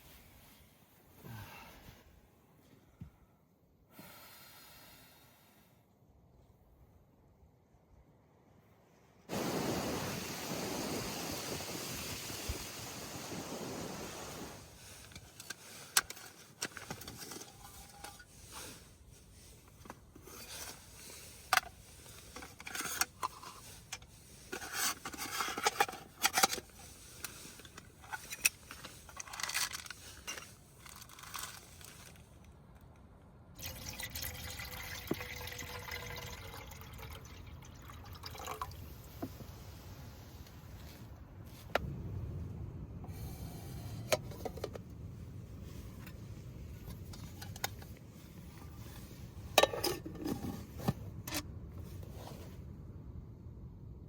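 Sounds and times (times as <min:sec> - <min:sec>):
water pouring into container: 0:33.6 - 0:38.9.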